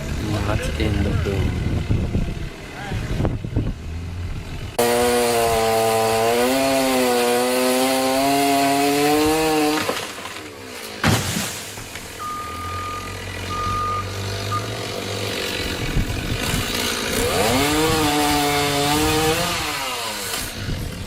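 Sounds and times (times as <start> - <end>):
low engine rumble: 0.0 - 4.8
chainsaw revving: 4.0 - 10.9, 12.8 - 21.0
short high beeps: 12.2 - 14.7.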